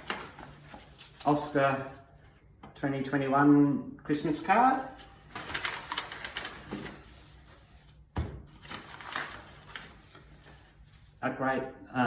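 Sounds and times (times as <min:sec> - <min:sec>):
card and wrapping rustling: 0:00.0 - 0:02.3, 0:04.2 - 0:11.2.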